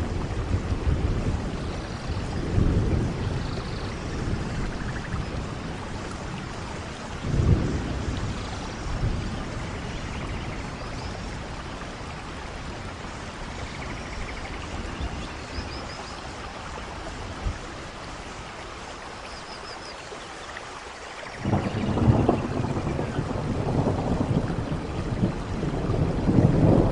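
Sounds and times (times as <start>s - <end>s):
low roll of thunder: 0.0s - 15.9s, 21.2s - 26.9s
heavy rain falling: 0.0s - 26.9s.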